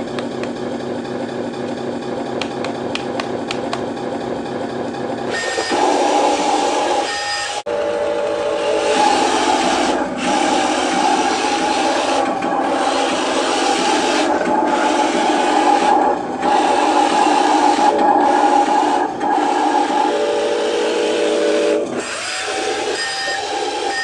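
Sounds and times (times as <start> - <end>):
toy truck motor whining: 5.3 - 7.7, 8.7 - 24.0.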